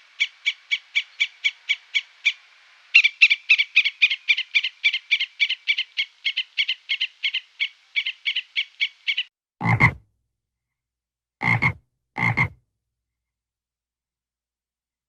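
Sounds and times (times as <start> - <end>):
frog pulsing calls: 0.2 - 10.0, 11.4 - 12.6
deep frog croaks: 9.6 - 10.0, 11.4 - 12.6.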